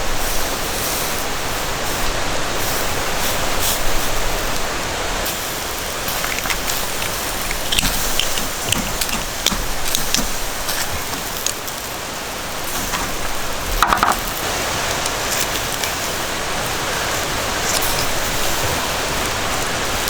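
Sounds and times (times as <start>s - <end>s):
steady rain: 0.0s - 20.0s
raindrops ticking: 4.3s - 20.0s.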